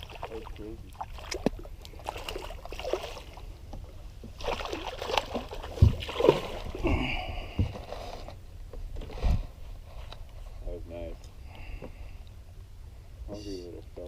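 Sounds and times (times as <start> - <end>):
knocks and thumps on a boat: 5.1 - 6.7, 7.3 - 9.5.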